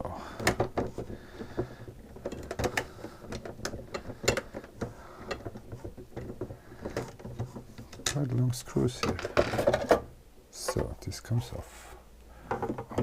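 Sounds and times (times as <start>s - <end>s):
screws clicking and knocking: 0.4s - 8.2s.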